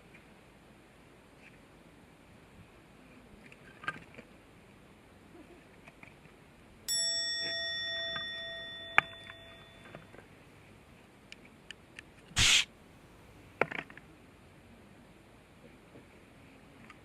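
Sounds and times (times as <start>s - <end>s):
metal object ringing like a bell: 6.9s - 10.3s.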